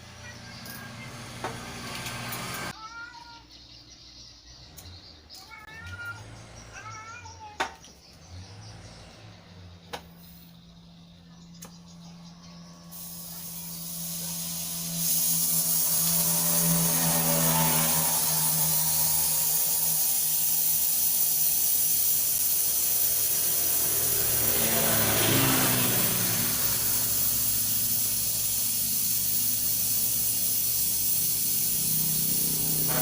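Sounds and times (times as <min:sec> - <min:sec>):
pressurised gas hissing: 0:12.5 - 0:33.0.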